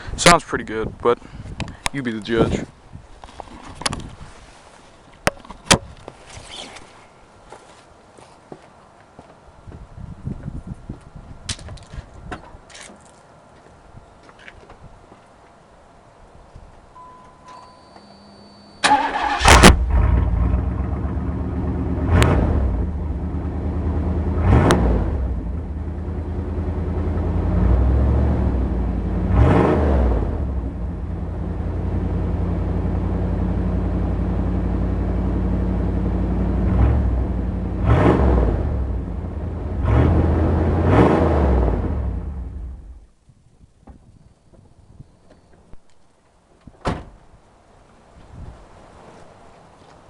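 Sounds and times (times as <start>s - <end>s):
car engine idling and revving: 18.1s - 43.1s
car engine starting: 18.1s - 43.1s.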